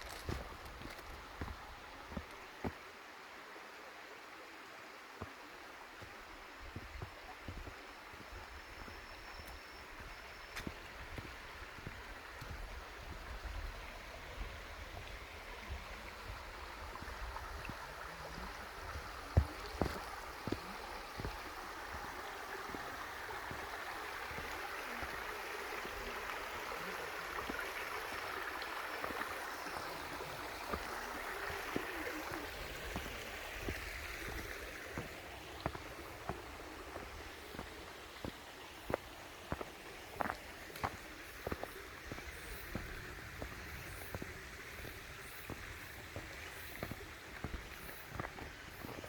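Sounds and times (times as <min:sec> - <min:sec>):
stream water rushing: 0:00.0 - 0:49.0.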